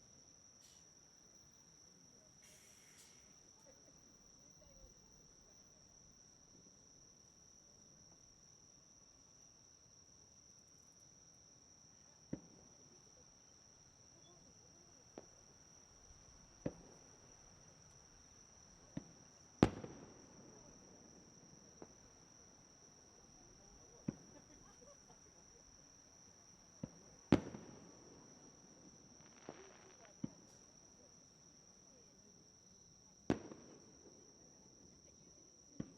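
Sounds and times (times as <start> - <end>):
fireworks bursting: 2.4 - 3.4, 18.9 - 20.8, 26.8 - 28.3, 29.1 - 30.6, 33.3 - 34.2.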